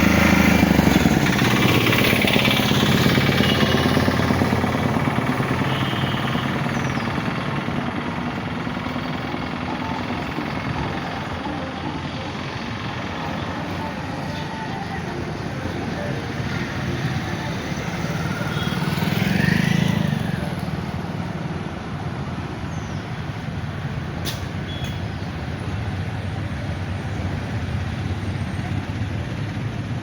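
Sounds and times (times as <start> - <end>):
heavy vehicle passing: 0.0 - 22.2
road traffic in rain: 0.0 - 30.0.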